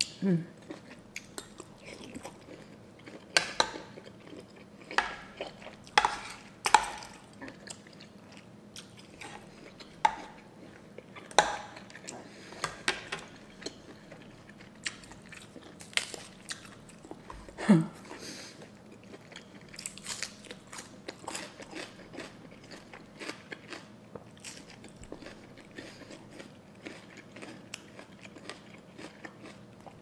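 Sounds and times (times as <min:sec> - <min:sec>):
person chewing crunchy food: 0:00.0 - 0:30.0.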